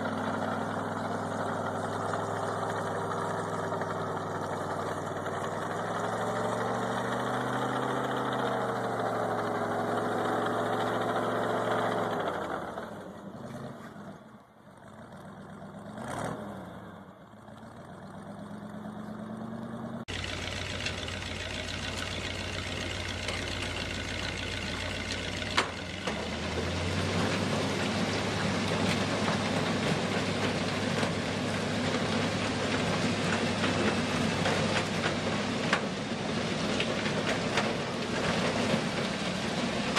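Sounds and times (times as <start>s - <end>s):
heavy vehicle engine wavering: 0.0s - 39.9s
steady vehicle engine: 0.0s - 39.9s.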